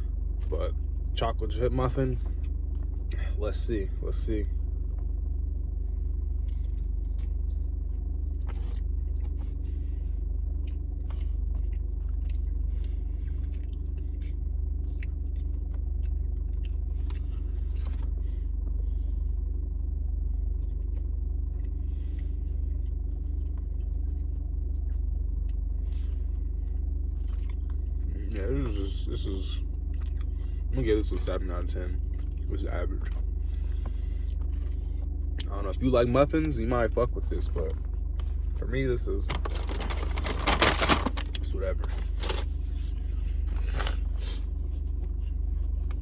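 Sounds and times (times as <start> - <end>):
low rumble: 0.0 - 46.0
person chewing muffin: 6.3 - 18.2, 20.2 - 28.8, 29.6 - 30.7, 32.0 - 35.6, 41.2 - 46.0.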